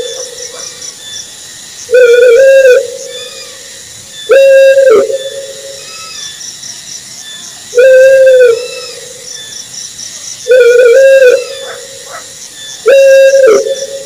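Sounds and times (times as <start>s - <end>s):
owl hooting: 0.0s - 0.9s, 1.9s - 6.4s, 7.7s - 9.5s, 10.4s - 14.0s
faint high rhythmic chirping: 0.0s - 14.0s.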